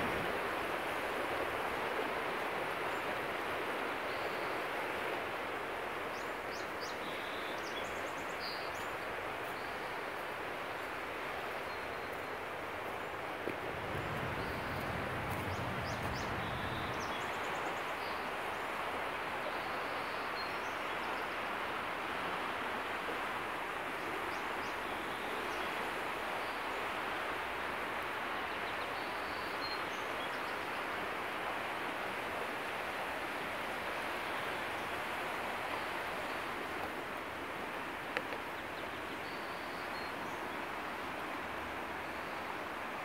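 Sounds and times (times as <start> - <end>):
even rushing noise: 13.6 - 17.3.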